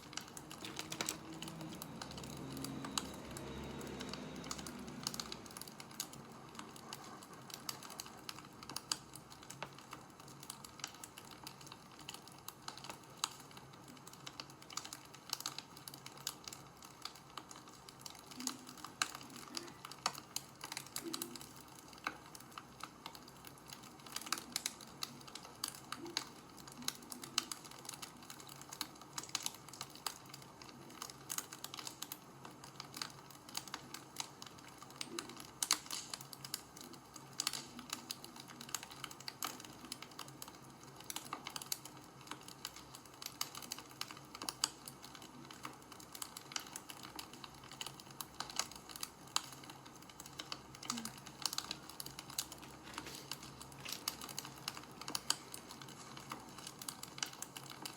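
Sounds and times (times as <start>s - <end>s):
faint steady hiss: 0.0s - 57.9s
wood fire crackling: 0.0s - 57.9s.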